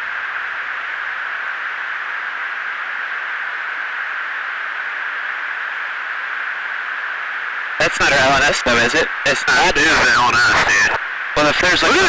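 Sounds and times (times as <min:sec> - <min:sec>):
radio hiss: 0:07.7 - 0:12.0.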